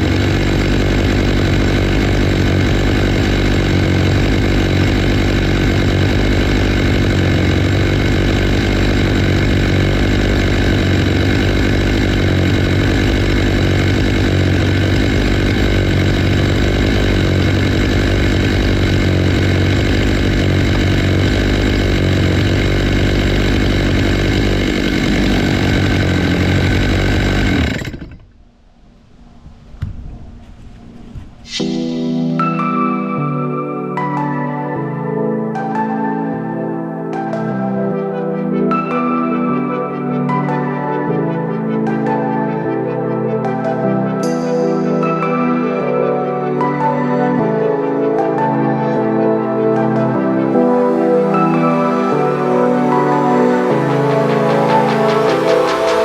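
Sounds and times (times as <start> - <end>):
chainsaw cutting log: 0.0 - 28.4, 46.6 - 56.0.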